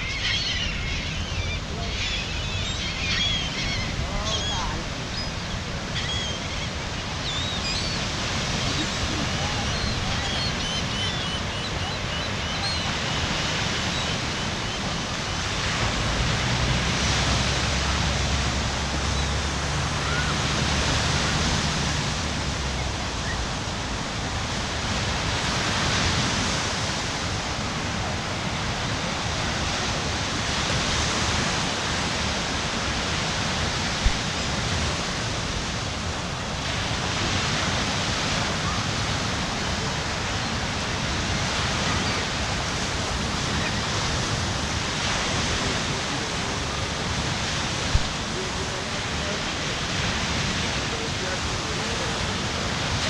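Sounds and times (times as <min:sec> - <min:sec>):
bird chirps: 0:00.0 - 0:08.0
ocean surf washing onto beach: 0:00.0 - 0:53.0.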